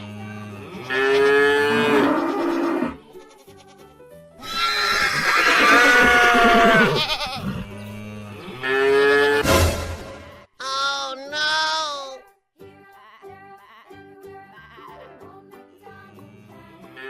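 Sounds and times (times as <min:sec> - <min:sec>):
farm animal calls: 0:00.0 - 0:03.0, 0:04.4 - 0:09.4
light backing music: 0:00.0 - 0:08.6, 0:11.3 - 0:17.0.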